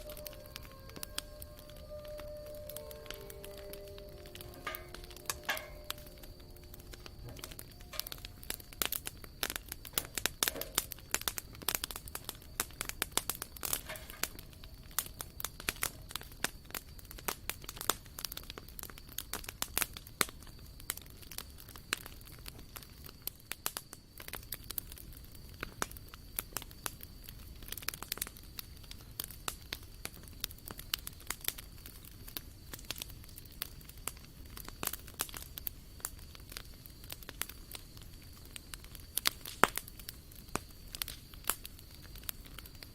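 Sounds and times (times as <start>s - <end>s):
faint high whine: 0.0s - 10.9s
campfire crackling and popping: 0.0s - 42.9s
soft low rush of fire: 0.0s - 42.9s.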